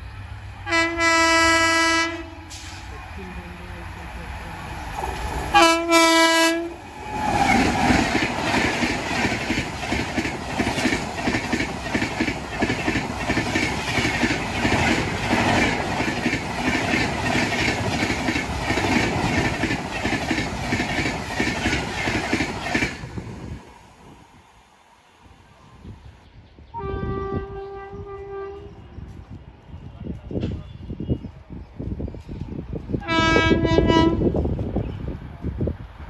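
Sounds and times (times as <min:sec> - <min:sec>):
train passing: 0:00.0 - 0:36.0
locomotive horn blast: 0:00.6 - 0:02.8, 0:05.5 - 0:06.8, 0:26.8 - 0:28.9, 0:33.0 - 0:34.3.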